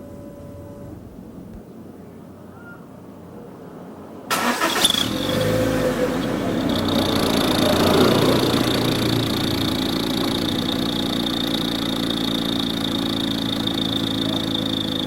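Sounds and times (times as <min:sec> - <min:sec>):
car engine starting and running: 0:04.0 - 0:15.0.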